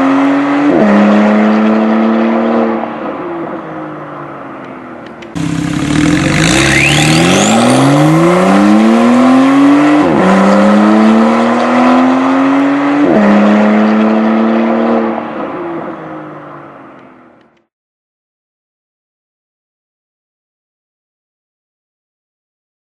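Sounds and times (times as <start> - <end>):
car engine accelerating hard: 0.0 - 3.8, 5.3 - 16.8
faint rising whistle: 6.4 - 7.9.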